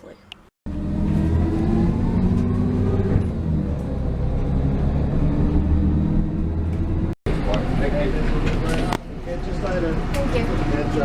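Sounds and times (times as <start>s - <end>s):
rising whine: 0.7s - 8.2s
bus engine rumbling: 0.7s - 11.0s.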